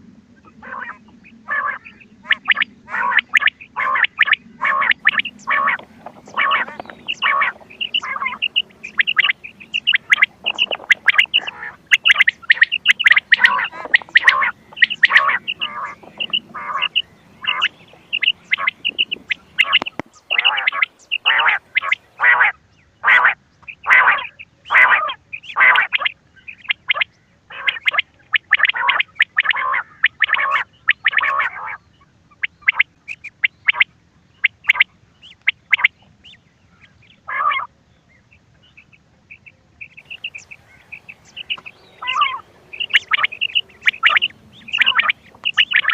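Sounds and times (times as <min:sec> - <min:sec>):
quail calls: 0:00.4 - 0:36.4, 0:37.2 - 0:37.7, 0:38.8 - 0:45.9.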